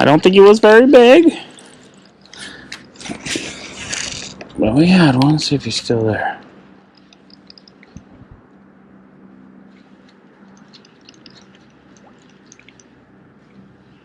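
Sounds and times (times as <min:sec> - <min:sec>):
low steady hum: 0:00.0 - 0:14.0
faint ticks: 0:06.9 - 0:08.0, 0:10.5 - 0:12.9
water lapping and dripping: 0:10.1 - 0:13.6.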